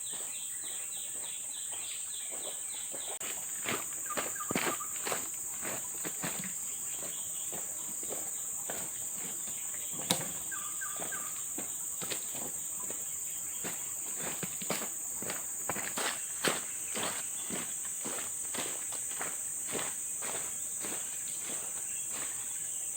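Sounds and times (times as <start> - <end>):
chirping calls: 0.0 - 14.3
forest insects chorus: 0.0 - 22.9.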